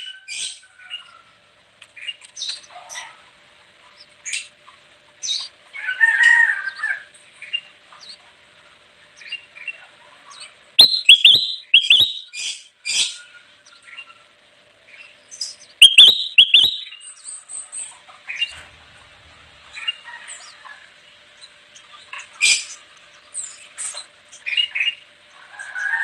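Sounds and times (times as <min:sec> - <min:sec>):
bulbul chirping: 0:10.8 - 0:12.6, 0:15.5 - 0:17.1.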